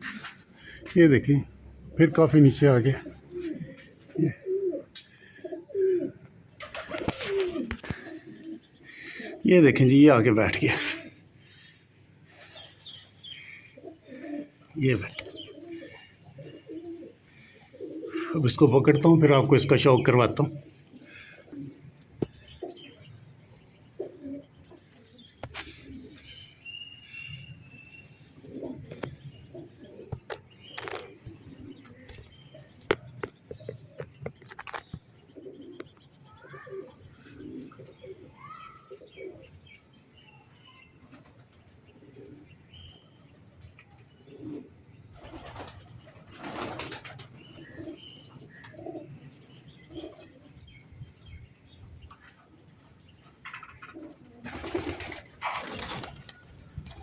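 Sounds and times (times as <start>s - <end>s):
pigeons cooing: 0.0s - 27.4s, 28.0s - 57.0s
small birds chirping: 0.0s - 57.0s
wings flapping: 6.6s - 8.2s, 45.2s - 48.0s, 54.4s - 57.0s.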